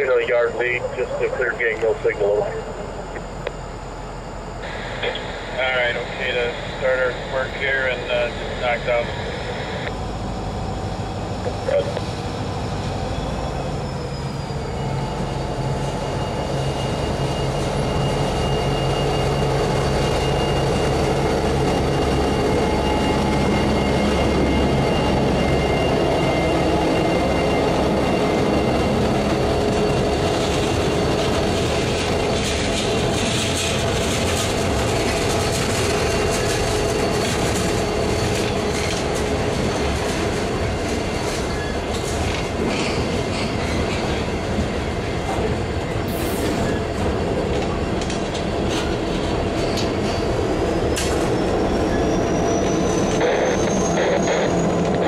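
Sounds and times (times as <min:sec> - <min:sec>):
train engine drone: 0:00.0 - 0:55.0
train cars rolling: 0:05.8 - 0:55.0
high wheel squeal: 0:11.0 - 0:55.0.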